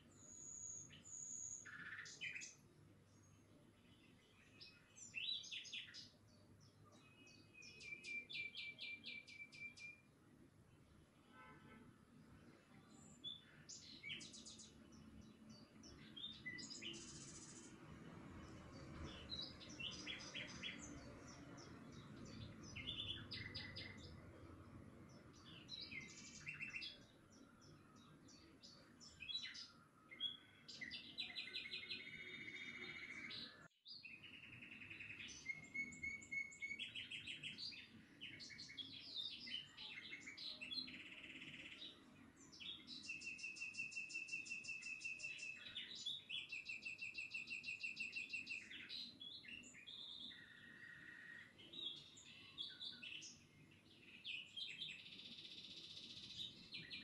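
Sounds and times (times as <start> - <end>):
small birds chirping and trilling: 0.0 - 11.4, 12.1 - 57.0.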